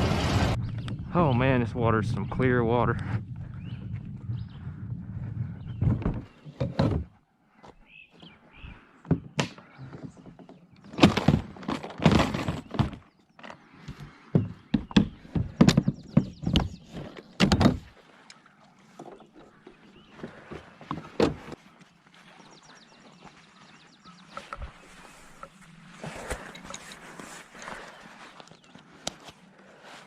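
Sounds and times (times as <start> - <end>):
clunks on kayak hull: 13.9 - 17.9.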